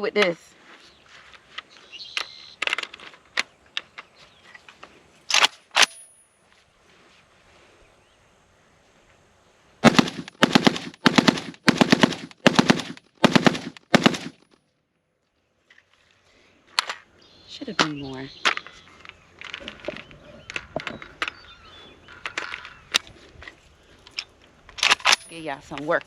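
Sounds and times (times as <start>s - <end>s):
sharp metallic clicks: 5.3s - 6.2s, 24.0s - 26.0s
rapid rifle shots: 9.8s - 14.5s.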